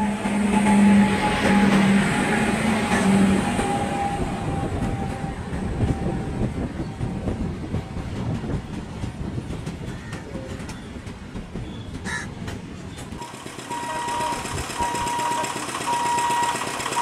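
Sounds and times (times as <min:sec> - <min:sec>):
freight train rumbling past: 0:00.0 - 0:17.0
wheels clacking over rail joints: 0:06.9 - 0:17.0.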